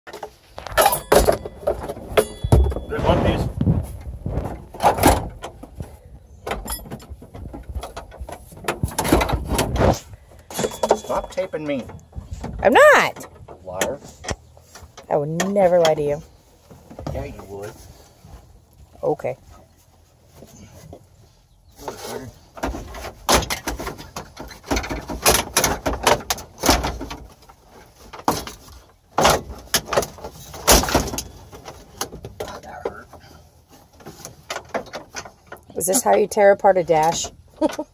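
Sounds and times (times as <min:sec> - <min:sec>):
plastic panels knocking and clattering: 0:04.4 - 0:09.8, 0:22.5 - 0:33.0, 0:34.0 - 0:35.7.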